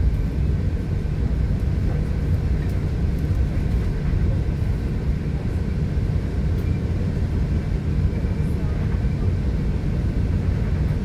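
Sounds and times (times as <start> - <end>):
train rumble from inside: 0.0 - 11.0.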